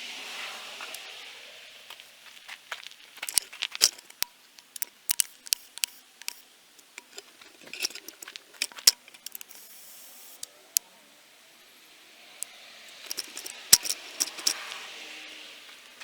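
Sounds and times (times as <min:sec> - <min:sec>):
small hard objects clattering: 0:02.8 - 0:09.6, 0:12.9 - 0:14.8.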